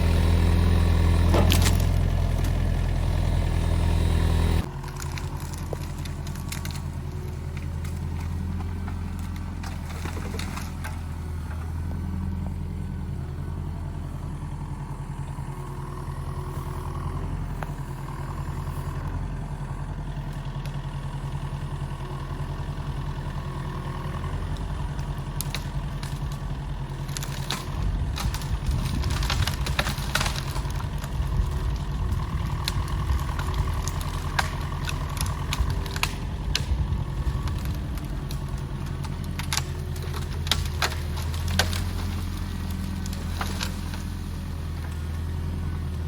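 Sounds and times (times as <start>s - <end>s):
excavator diesel engine running: 0.0s - 46.0s
knocks and clatter: 25.0s - 44.0s.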